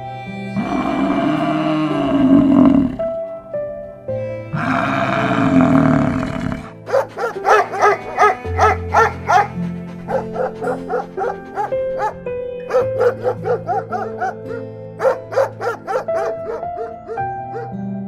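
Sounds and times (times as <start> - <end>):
soft background music: 0.0 - 18.0
dog barking: 6.8 - 17.8.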